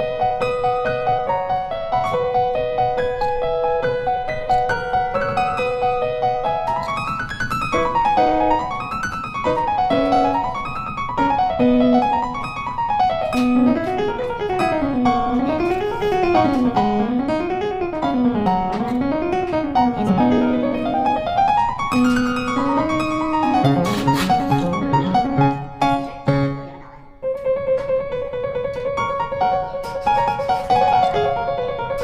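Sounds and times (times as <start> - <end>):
piano arpeggios: 0.0 - 32.0.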